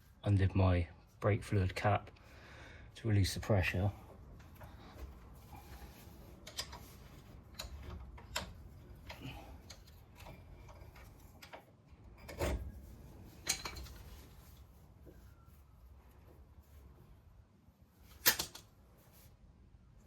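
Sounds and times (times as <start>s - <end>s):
tool clicks and knocks: 18.2s - 18.7s.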